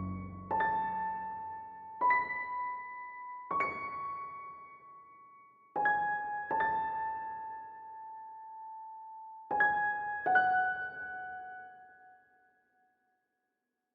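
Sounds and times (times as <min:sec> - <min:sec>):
slow piano notes: 0:00.0 - 0:04.8.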